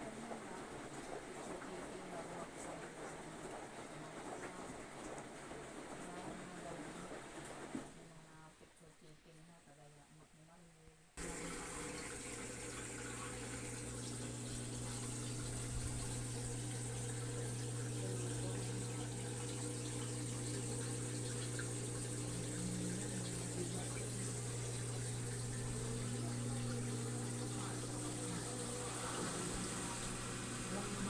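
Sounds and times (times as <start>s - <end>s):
washing machine running: 0.0s - 8.0s, 11.2s - 31.0s
water flowing: 11.2s - 31.0s.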